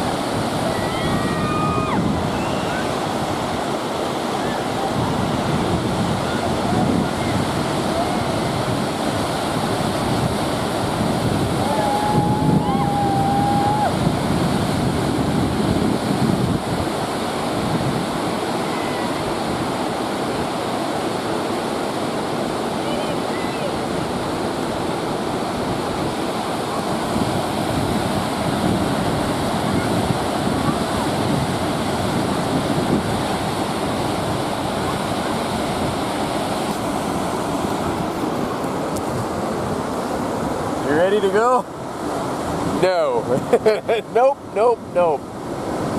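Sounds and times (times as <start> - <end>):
wind buffeting microphone: 0.0 - 20.7, 23.2 - 43.6, 44.4 - 45.9
river rushing: 0.0 - 45.9.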